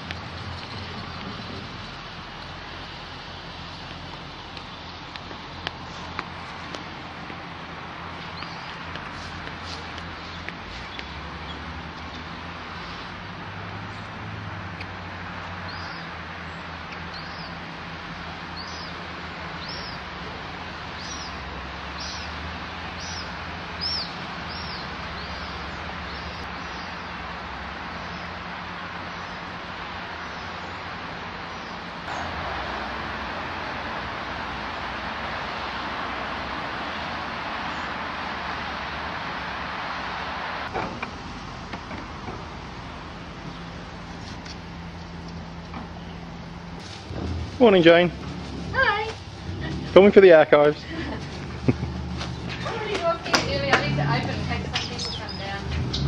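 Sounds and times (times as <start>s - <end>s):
small bird chirping: 21.0s - 21.4s, 23.0s - 27.1s, 54.8s - 56.0s.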